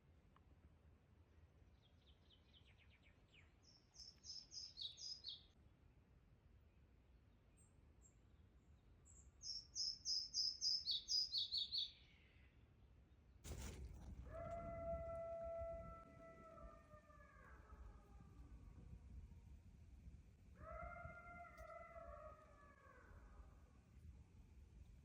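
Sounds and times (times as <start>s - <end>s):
faint forest background: 0.0s - 25.0s
songbird chirping: 1.8s - 5.6s, 7.5s - 12.6s.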